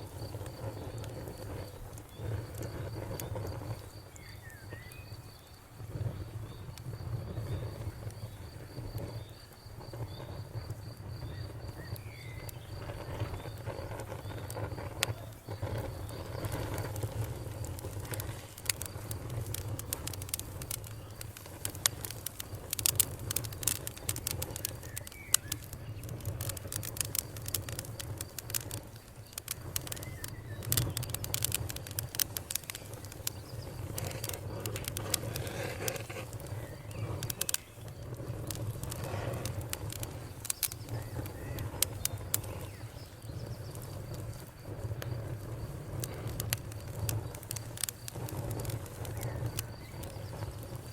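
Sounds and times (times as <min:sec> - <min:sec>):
campfire crackling and popping: 0:00.0 - 0:50.9
faint bird chirps: 0:04.0 - 0:05.7, 0:24.2 - 0:27.1, 0:29.8 - 0:35.4, 0:48.6 - 0:50.7.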